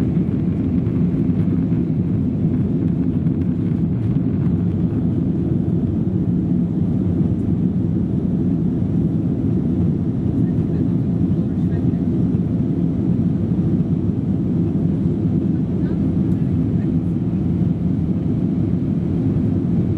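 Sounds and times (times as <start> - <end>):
aircraft cabin engine rumble: 0.0 - 19.9.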